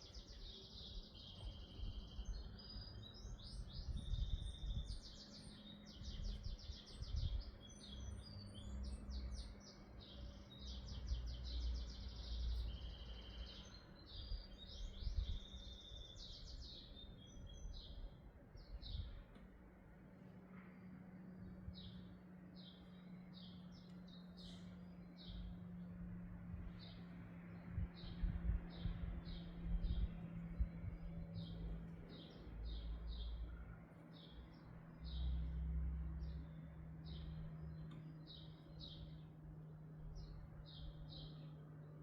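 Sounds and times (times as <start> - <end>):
songbirds chirping and trilling: 0.0 - 42.0.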